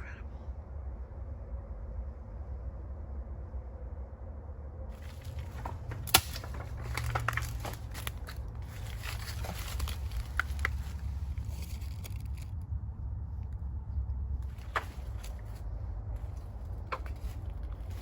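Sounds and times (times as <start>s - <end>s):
low steady rumble: 0.0s - 18.0s
footsteps crunching dry leaves: 5.0s - 12.5s, 14.5s - 18.0s.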